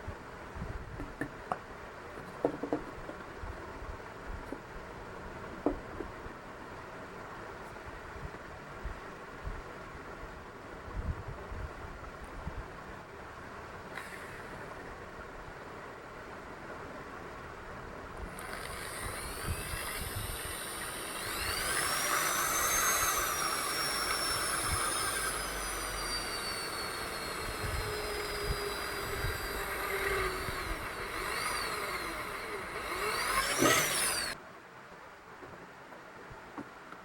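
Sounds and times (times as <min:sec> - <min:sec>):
small electric motor whining: 0:13.9 - 0:14.7, 0:18.2 - 0:34.4.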